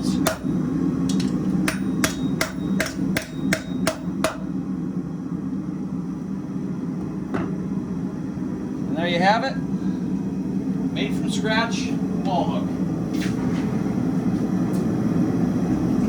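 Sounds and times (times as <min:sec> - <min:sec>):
hammer ringing on anvil: 0:01.6 - 0:04.4.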